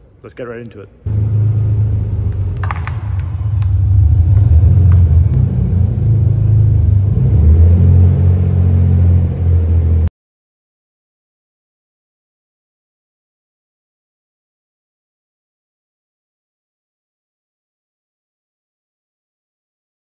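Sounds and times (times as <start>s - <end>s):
car engine running: 1.1s - 10.1s.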